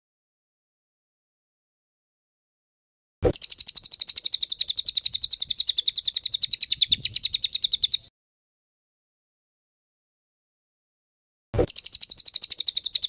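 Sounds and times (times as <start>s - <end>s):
songbird rapid chirping trill: 3.2s - 8.1s, 11.6s - 13.0s.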